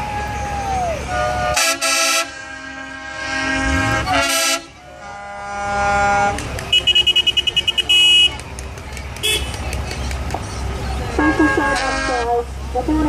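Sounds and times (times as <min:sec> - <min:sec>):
truck horn blasts: 0:01.0 - 0:08.4, 0:09.2 - 0:09.6, 0:11.2 - 0:12.6.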